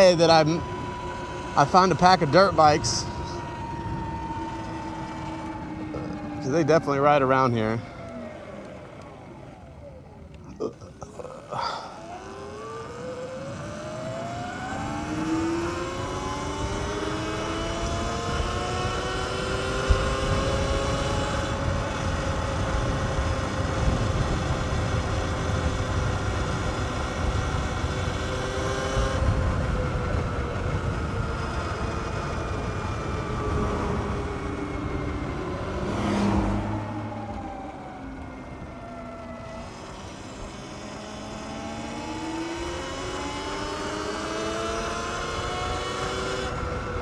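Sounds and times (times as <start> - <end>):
electric dirt bike motor whine: 0.0 - 47.0
wind rumble on microphone: 16.5 - 39.6.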